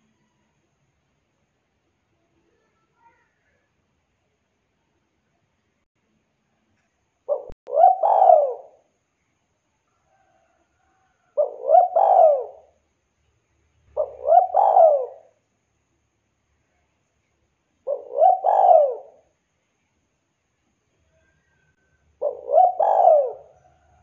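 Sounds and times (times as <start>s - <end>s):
dove cooing: 7.3s - 8.8s, 11.4s - 12.8s, 13.9s - 15.3s, 17.8s - 19.3s, 22.2s - 24.0s.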